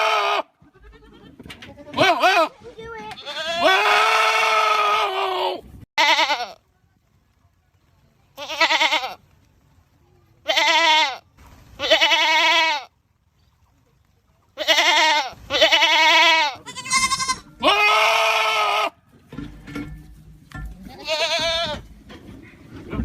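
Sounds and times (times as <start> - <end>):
goats screaming: 0.0 - 1.4, 3.2 - 6.4, 14.6 - 19.0.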